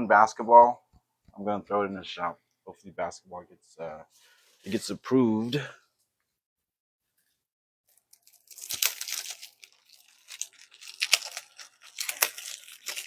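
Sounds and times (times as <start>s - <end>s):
plastic wrapping crinkling and tearing: 7.9s - 13.0s.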